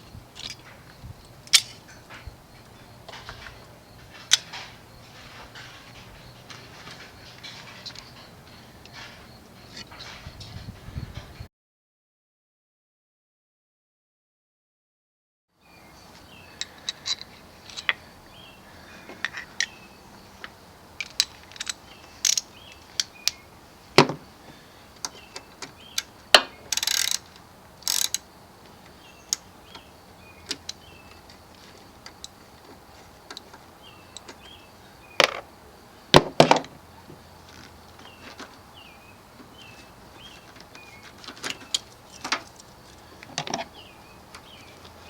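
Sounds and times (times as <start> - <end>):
ratchet wrench rasping: 21.0 - 23.1, 26.7 - 28.3
metal hand tools clicking: 21.0 - 23.4, 25.9 - 28.3.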